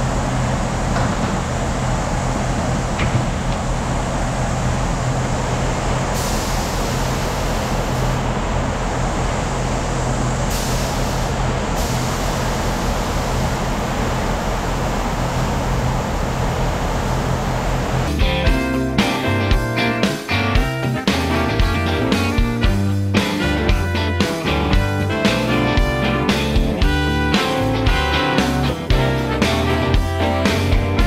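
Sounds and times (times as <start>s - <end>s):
low machine hum: 0.0s - 31.0s
machine hiss: 3.6s - 18.2s.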